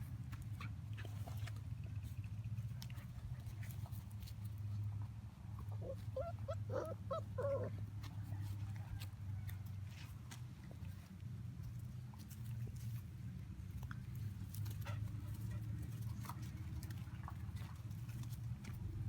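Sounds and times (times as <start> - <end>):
puppy yipping: 5.7 - 7.8.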